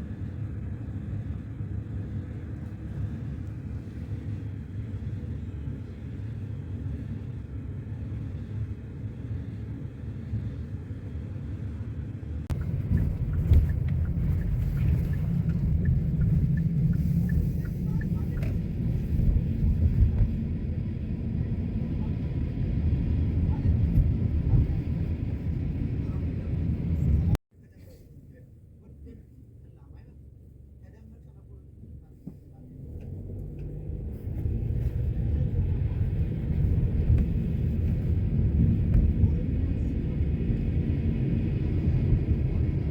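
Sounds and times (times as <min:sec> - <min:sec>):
steady low rumble: 0:00.0 - 0:42.9.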